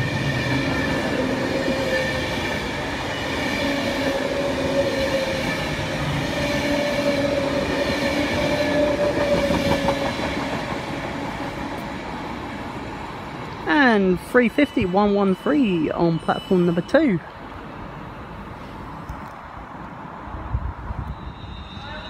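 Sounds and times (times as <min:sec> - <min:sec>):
train wheels rumbling on rails: 0:00.0 - 0:16.5.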